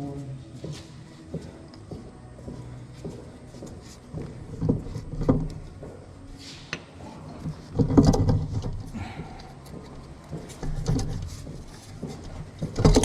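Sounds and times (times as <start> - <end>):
knocks and clatter of parts: 4.1 - 5.9, 7.3 - 13.0.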